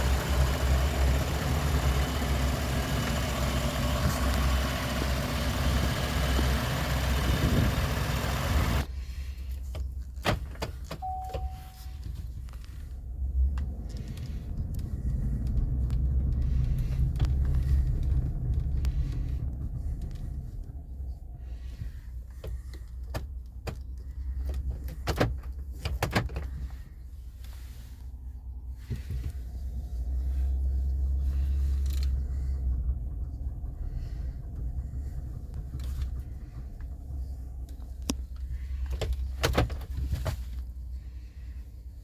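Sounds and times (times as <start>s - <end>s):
pickup engine idling: 0.0s - 8.9s, 13.9s - 23.0s, 28.8s - 39.4s
short beep: 11.0s - 12.1s.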